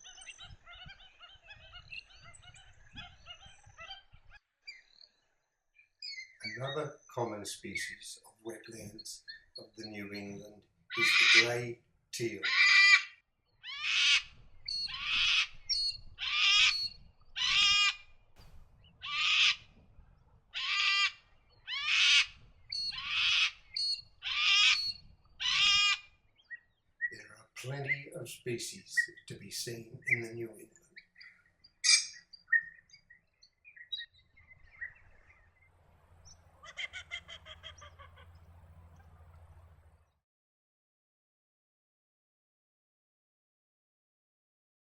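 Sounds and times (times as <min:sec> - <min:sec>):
birds chirping: 0:00.0 - 0:05.2, 0:05.8 - 0:40.2
duck harsh rasping calls: 0:10.9 - 0:13.1, 0:13.7 - 0:15.5, 0:16.2 - 0:18.0, 0:19.0 - 0:19.7, 0:20.6 - 0:26.0, 0:36.5 - 0:39.8
faint low rumble: 0:18.0 - 0:21.7, 0:34.1 - 0:40.2.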